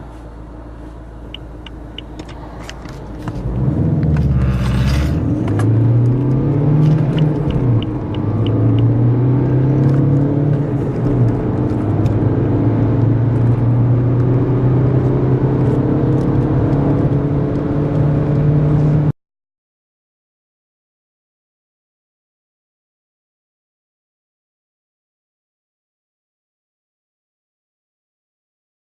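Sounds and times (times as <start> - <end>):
diesel car engine accelerating: 0.0 - 19.2.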